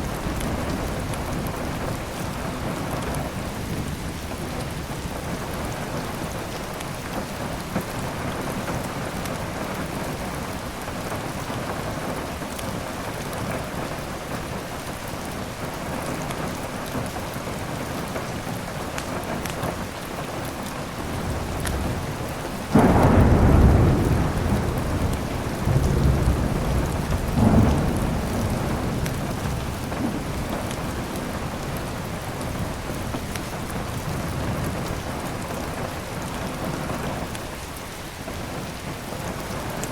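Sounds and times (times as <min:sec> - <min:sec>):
heavy rain: 0:00.0 - 0:39.9
close thunderclap rumbling: 0:21.0 - 0:37.4.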